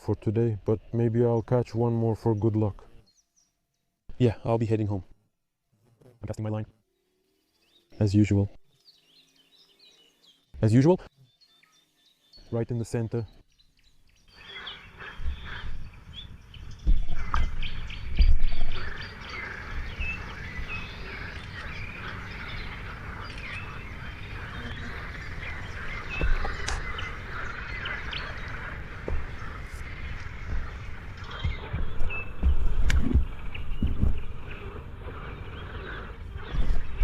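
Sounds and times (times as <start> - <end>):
small birds chirping and singing: 0.0 - 5.0, 6.3 - 37.0
low thumps: 15.2 - 19.0, 24.3 - 35.3, 36.2 - 37.0.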